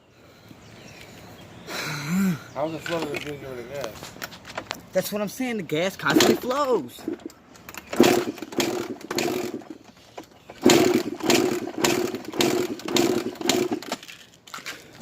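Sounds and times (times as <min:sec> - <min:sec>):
two-stroke engine sputtering: 0:06.0 - 0:14.0.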